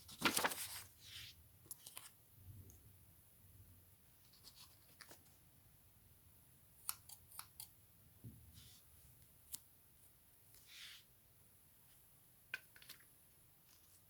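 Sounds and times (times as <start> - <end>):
paper rustling: 0.0 - 2.1
scissors snipping paper: 6.8 - 7.7.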